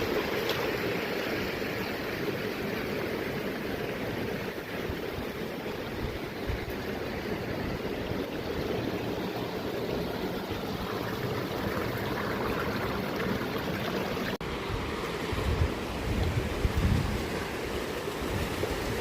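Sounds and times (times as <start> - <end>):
mountain stream rushing: 0.0 - 19.0
wind rumble on microphone: 3.3 - 12.8, 14.6 - 19.0.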